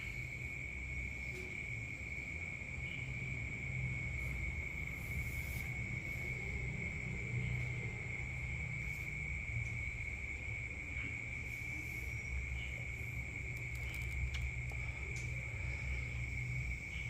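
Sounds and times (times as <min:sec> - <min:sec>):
cricket trill: 0:00.0 - 0:17.0
faint clicks: 0:13.5 - 0:15.4.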